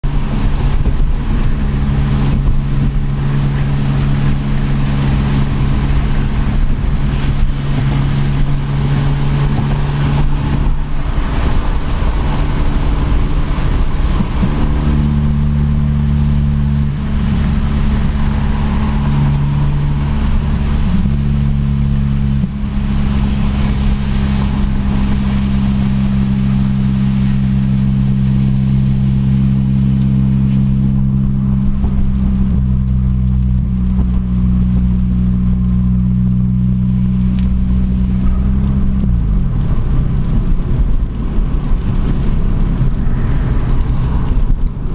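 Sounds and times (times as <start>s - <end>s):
car engine exhaust droning: 0.0s - 44.9s.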